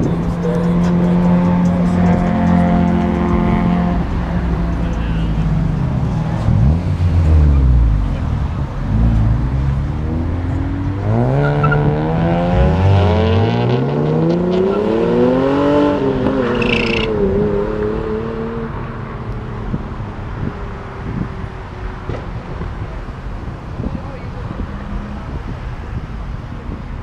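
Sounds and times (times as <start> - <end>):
car engine revving loud exhaust: 0.0 - 19.0.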